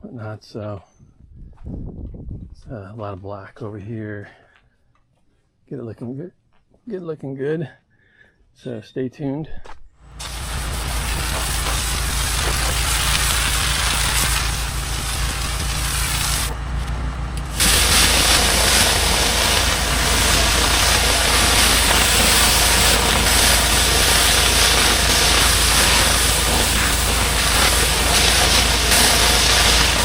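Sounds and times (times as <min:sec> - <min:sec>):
water spray hissing on concrete: 0:10.2 - 0:16.6, 0:17.4 - 0:30.0
pressure washer engine running: 0:10.2 - 0:30.0.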